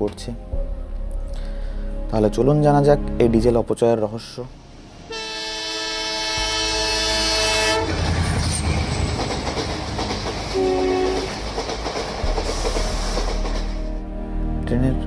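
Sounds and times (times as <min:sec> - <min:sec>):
train rumbling past on track: 0:04.5 - 0:14.2
train horn blast: 0:05.0 - 0:08.3, 0:10.5 - 0:11.4.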